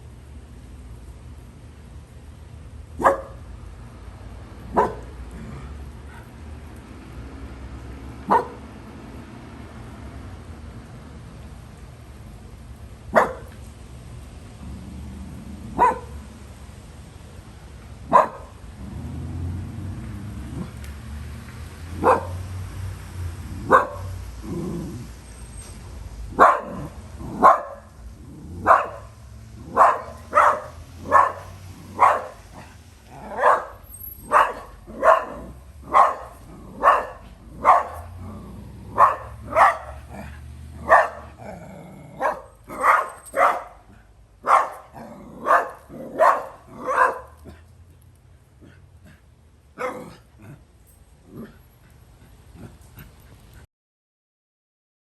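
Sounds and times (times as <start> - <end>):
dog barking: 3.0 - 3.4, 4.7 - 5.2, 8.3 - 8.6, 13.1 - 13.6, 15.7 - 16.2, 18.0 - 18.6, 21.9 - 22.4, 23.6 - 24.2, 26.3 - 27.9, 28.6 - 38.2, 38.8 - 47.6, 49.8 - 50.2.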